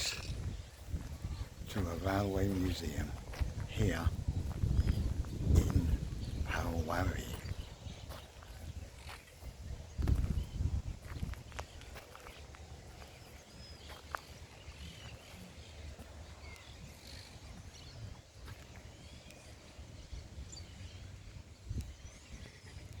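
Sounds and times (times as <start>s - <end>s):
steady low rumble: 0.0s - 11.9s
small birds chirping: 0.0s - 23.0s.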